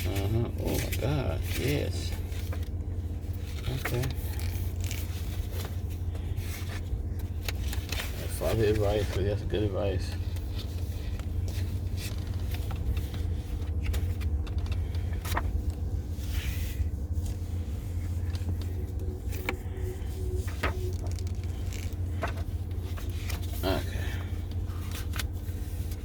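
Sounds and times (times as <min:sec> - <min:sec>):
small clicks and rustles: 0:01.5 - 0:09.2, 0:10.1 - 0:16.4
low rumble: 0:09.3 - 0:26.0.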